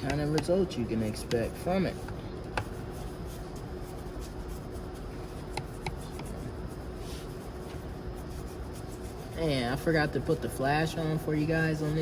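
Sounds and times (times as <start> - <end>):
paintbrush scrubbing surfaces: 2.6 - 12.0.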